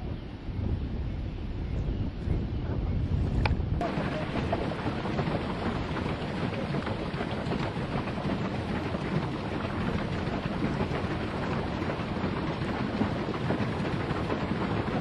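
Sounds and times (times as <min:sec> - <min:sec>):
wind: 0:00.0 - 0:15.0
water rushing: 0:03.8 - 0:15.0.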